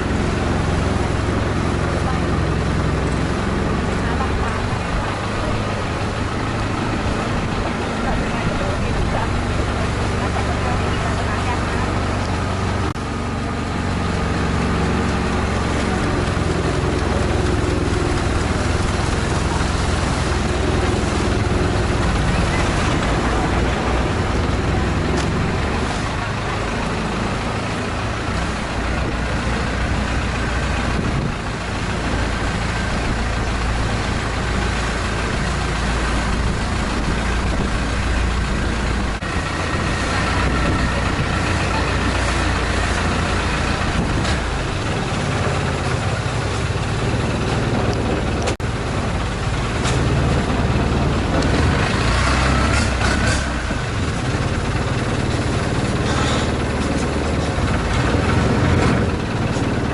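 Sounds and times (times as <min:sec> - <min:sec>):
boat engine droning: 0:00.0 - 0:59.9.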